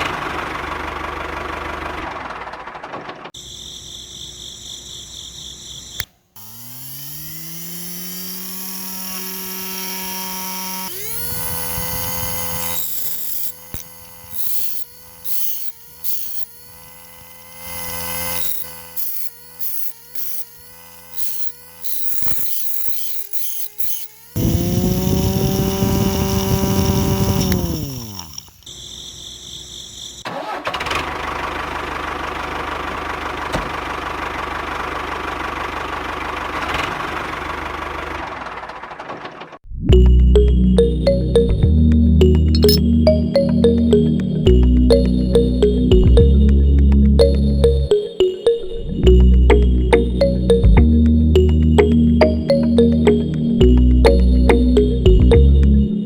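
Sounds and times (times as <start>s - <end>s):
small electric motor humming: 3.4s - 30.2s, 42.3s - 42.8s.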